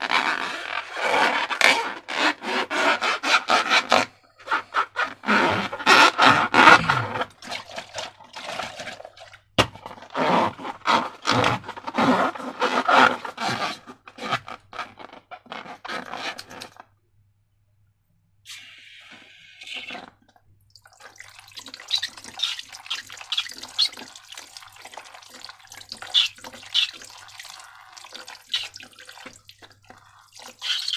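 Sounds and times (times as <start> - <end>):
slime squishing and scraping: 0.1 - 9.2, 25.2 - 30.9.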